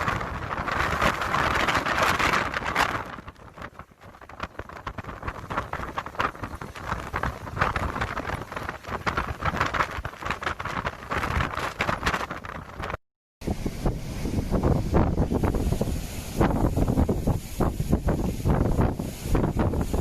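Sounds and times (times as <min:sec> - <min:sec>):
rain pattering: 0:00.0 - 0:13.0
wind buffeting microphone: 0:00.0 - 0:20.0.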